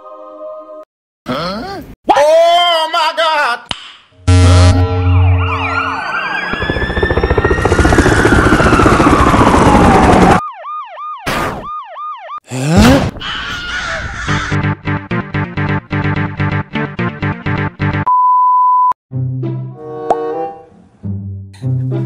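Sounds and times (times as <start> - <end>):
wailing siren: 4.3 - 12.4
yelping siren: 4.3 - 12.4
helicopter rotor noise: 5.6 - 10.4.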